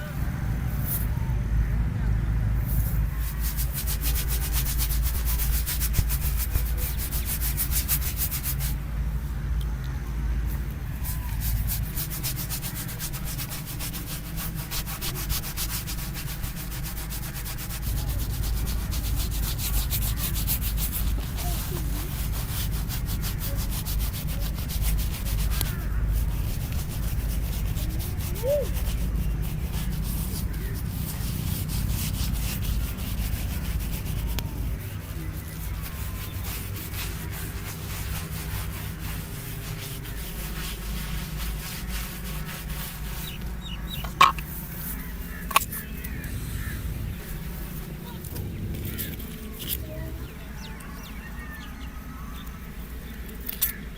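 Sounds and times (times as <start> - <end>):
razor scraping skin and hair: 11.1 - 46.0.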